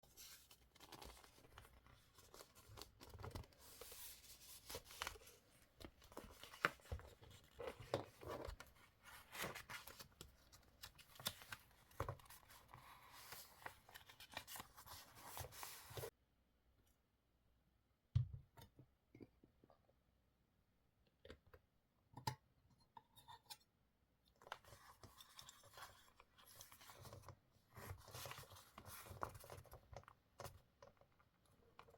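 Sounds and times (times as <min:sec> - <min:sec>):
paper rustling: 0:00.0 - 0:16.1.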